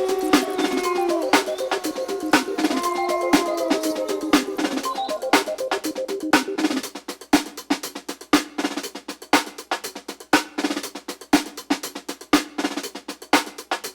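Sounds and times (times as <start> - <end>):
low steady pitched tone: 0.0 - 6.8
driving drum beat: 0.0 - 13.9.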